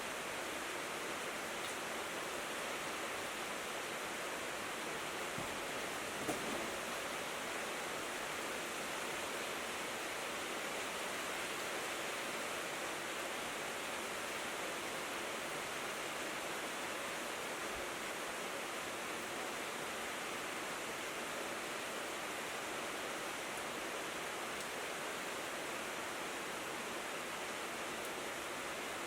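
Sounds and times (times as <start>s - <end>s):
rain on a tin roof: 0.0s - 29.0s.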